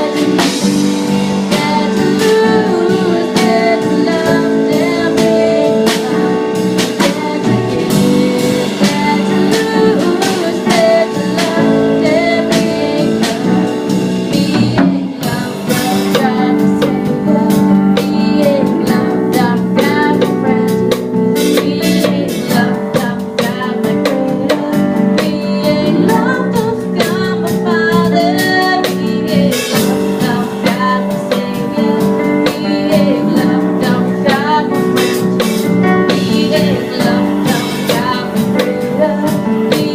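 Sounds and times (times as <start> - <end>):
drum kit: 0.0 - 39.9
guitar: 0.0 - 39.9
person singing: 0.0 - 39.9.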